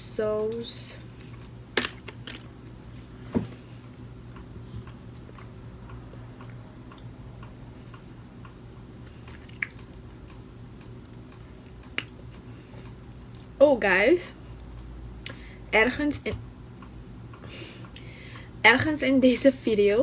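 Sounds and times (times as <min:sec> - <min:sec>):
steady low hum: 0:00.0 - 0:20.0
close chewing: 0:04.3 - 0:13.6
wet mouth clicks: 0:09.2 - 0:10.0, 0:11.8 - 0:12.4.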